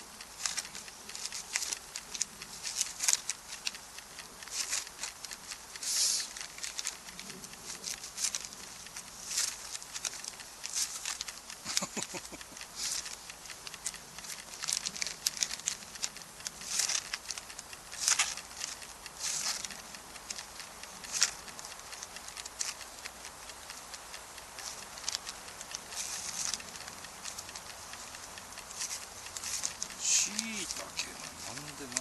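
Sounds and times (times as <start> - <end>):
wood fire crackling: 0.0 - 32.0
camp gear and packaging rustling: 24.6 - 32.0.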